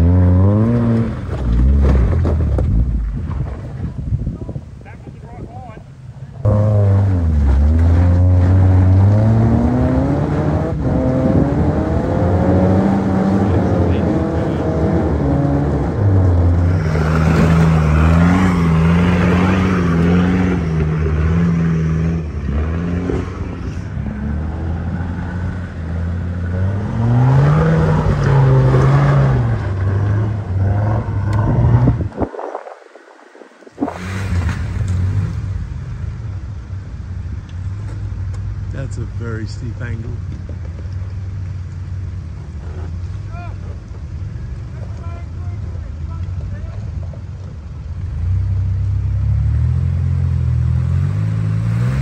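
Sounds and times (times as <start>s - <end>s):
vehicle engine revving: 0.0s - 3.3s, 6.4s - 32.6s, 33.8s - 36.7s, 48.0s - 52.0s.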